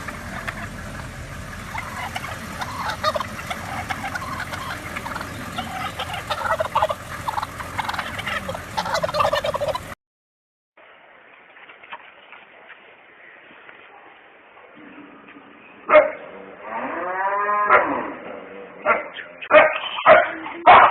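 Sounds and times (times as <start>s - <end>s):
birds calling rapidly: 0.0s - 10.0s.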